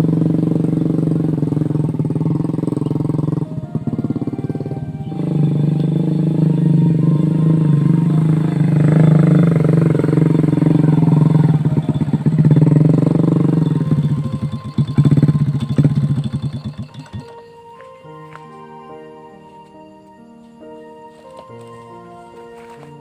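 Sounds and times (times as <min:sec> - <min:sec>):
motorcycle engine revving: 0:00.0 - 0:17.5.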